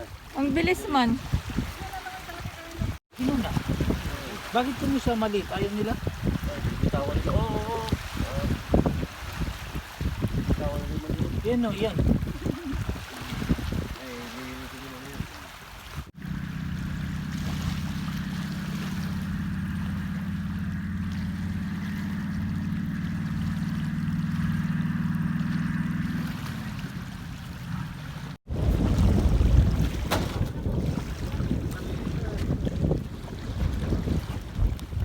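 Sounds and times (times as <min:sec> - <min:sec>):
engine humming: 0:16.2 - 0:28.4.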